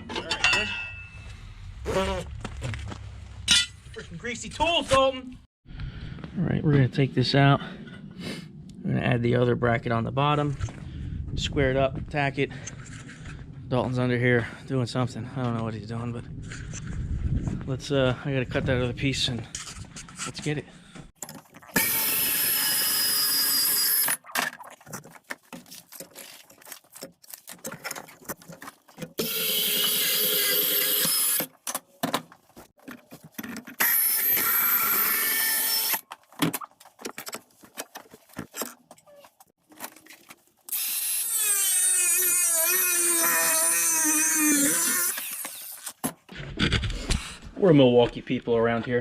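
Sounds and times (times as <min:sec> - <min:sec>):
power tool cutting steel: 0:21.8 - 0:24.2, 0:29.2 - 0:31.5, 0:33.8 - 0:36.0, 0:40.7 - 0:45.9.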